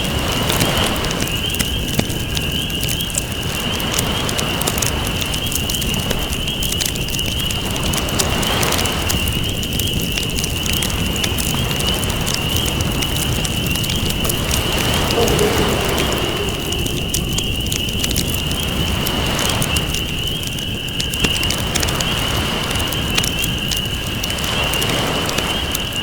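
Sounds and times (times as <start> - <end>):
campfire crackling and popping: 0.0 - 26.0
ocean waves: 14.1 - 19.9.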